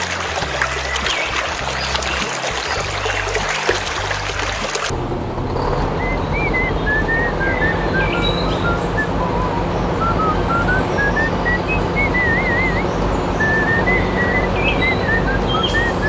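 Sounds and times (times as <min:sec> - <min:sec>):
high chirps: 0:00.0 - 0:04.9, 0:05.6 - 0:16.0
rushing water-like noise: 0:00.0 - 0:04.9.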